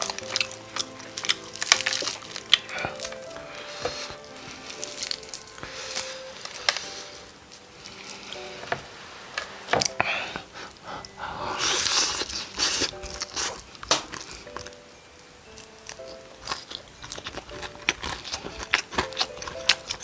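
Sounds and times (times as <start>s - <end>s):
crunching and chewing: 0.0s - 8.4s, 15.5s - 20.0s.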